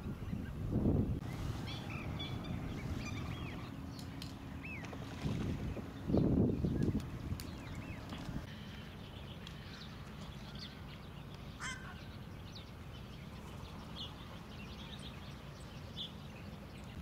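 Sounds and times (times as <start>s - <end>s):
steady low rumble: 0.0s - 9.9s
waterbird calls: 1.2s - 17.0s.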